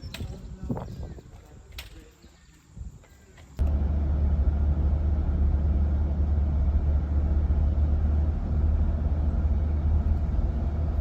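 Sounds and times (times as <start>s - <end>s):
road and engine rumble in cabin: 3.6s - 11.0s.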